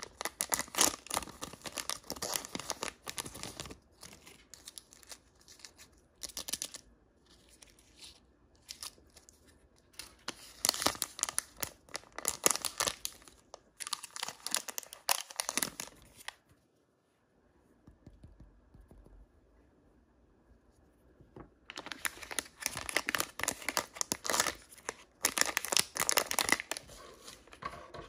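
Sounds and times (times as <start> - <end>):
wrapper tearing and crinkling: 0.0 - 6.8, 10.0 - 16.4, 21.7 - 27.5.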